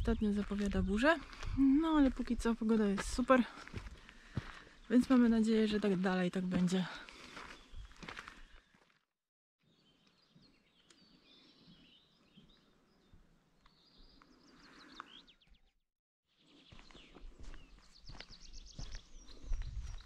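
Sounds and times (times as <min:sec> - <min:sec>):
faint birdsong chirps and trill: 0:07.0 - 0:09.0, 0:09.6 - 0:20.0.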